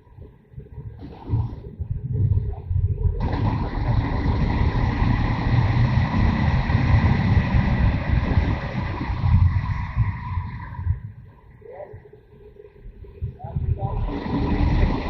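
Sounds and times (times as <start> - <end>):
wind and road noise: 0.6 - 12.2
motorcycle engine rumbling: 1.9 - 11.8.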